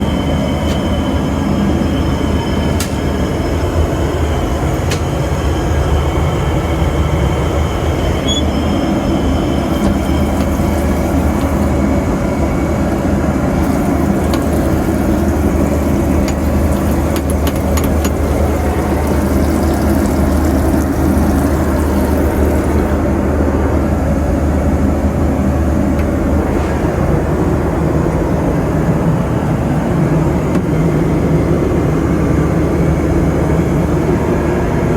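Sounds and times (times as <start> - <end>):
airplane cabin engine rumble: 0.0 - 34.9.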